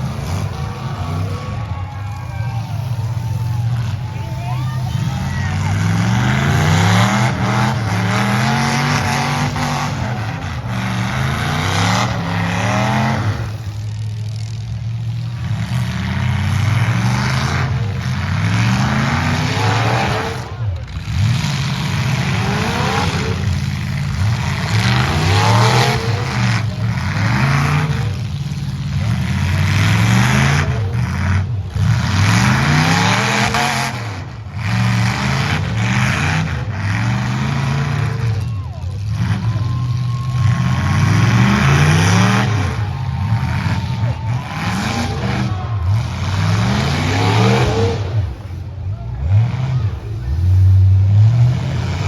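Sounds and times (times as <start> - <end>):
truck engines revving: 0.0 - 52.0.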